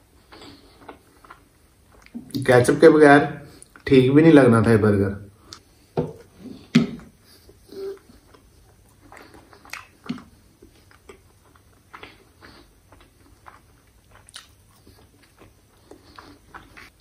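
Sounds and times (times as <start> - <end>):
man chewing: 0.0 - 2.4, 6.3 - 17.0.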